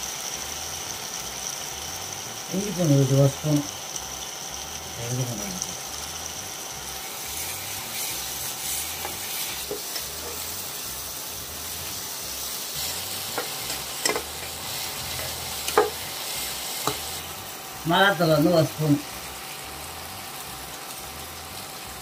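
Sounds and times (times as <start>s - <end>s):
masala sizzling in oil: 0.0s - 22.0s
utensil scraping a pan: 7.1s - 10.6s.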